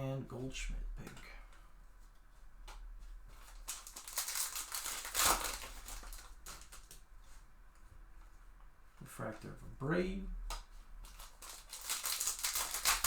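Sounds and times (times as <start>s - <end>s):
crinkly wrapper rustling: 2.7s - 7.4s, 10.5s - 13.0s.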